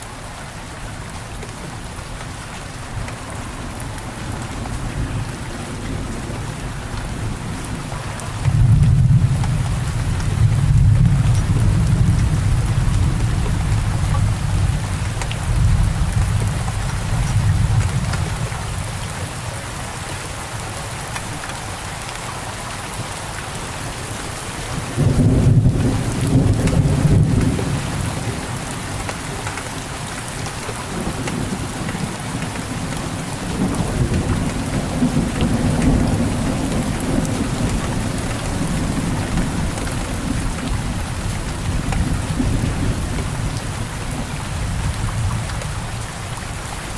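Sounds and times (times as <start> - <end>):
steady rain: 0.0 - 46.9
rolling thunder: 8.5 - 18.5, 24.8 - 28.7.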